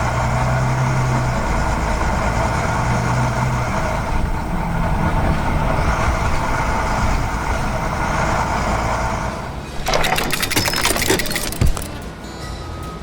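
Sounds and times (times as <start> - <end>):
truck engine droning: 0.0 - 10.0
clatter of clicks: 9.8 - 12.1.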